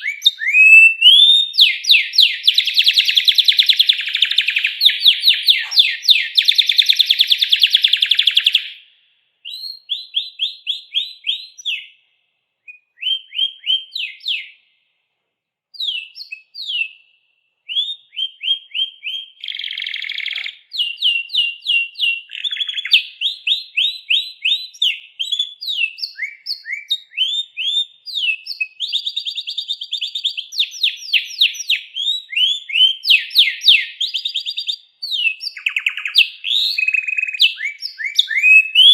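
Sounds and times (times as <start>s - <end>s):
songbird singing trills: 0.0s - 12.0s, 12.7s - 14.6s, 15.8s - 38.9s.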